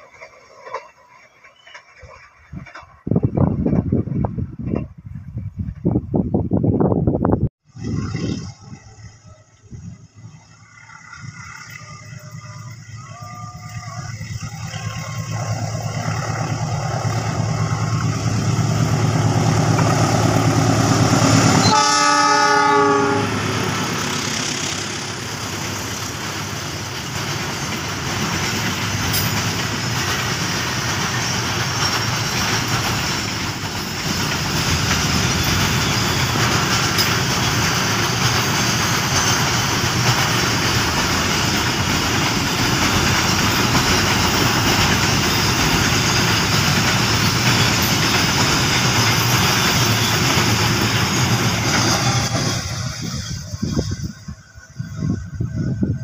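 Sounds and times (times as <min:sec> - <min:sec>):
locomotive engine: 0:00.0 - 0:06.0, 0:07.6 - 0:56.0
freight wagons rumbling and clattering: 0:00.0 - 0:06.8, 0:24.1 - 0:55.0
train horn blast: 0:19.2 - 0:25.0.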